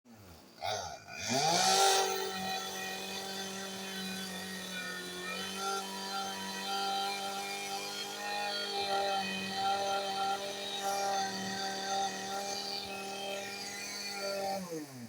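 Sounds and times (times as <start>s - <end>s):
chainsaw engine starting and idling: 0.1s - 15.0s.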